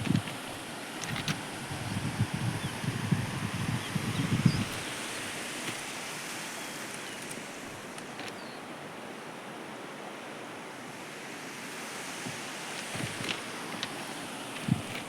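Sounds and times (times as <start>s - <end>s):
steady outdoor rushing noise: 11.0s - 15.0s.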